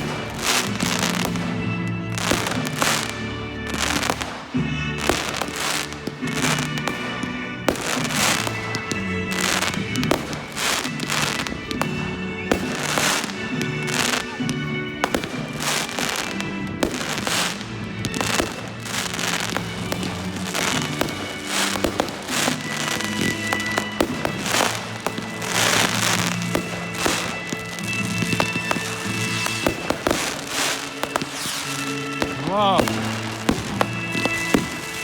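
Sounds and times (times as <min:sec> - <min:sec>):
fireworks bangs and crackles: 0:00.0 - 0:35.0
music playing: 0:00.0 - 0:35.0.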